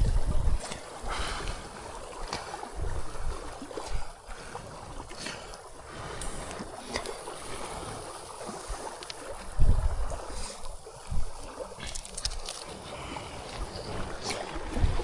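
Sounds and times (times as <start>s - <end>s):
wind buffeting microphone: 0.0s - 4.2s, 7.4s - 15.0s.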